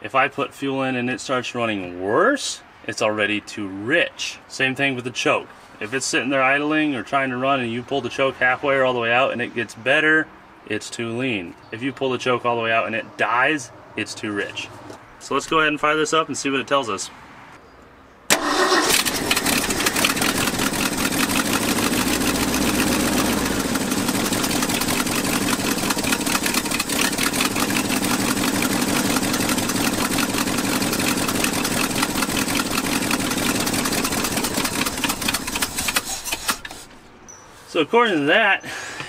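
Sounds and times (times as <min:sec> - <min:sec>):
engine starting and idling rough: 0:18.3 - 0:37.0.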